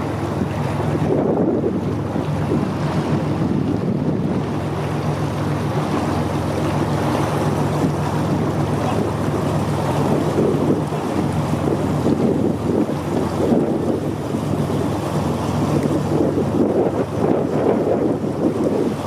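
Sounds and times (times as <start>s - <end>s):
motorboat engine running: 0.0s - 19.0s
water rushing past: 0.0s - 19.0s
wind buffeting microphone: 0.0s - 19.0s.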